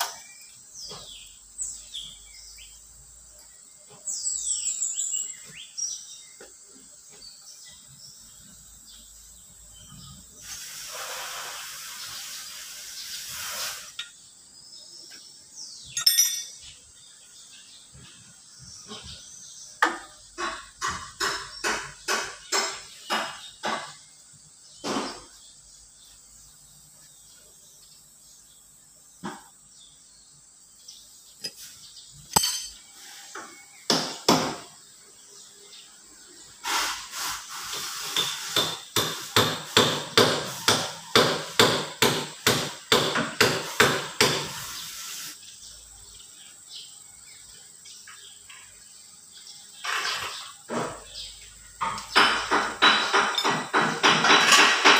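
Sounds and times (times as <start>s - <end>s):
hammer striking metal: 32.3s - 32.8s.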